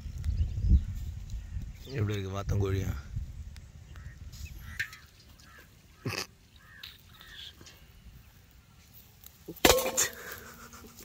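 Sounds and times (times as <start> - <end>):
birds calling: 3.6 - 9.0.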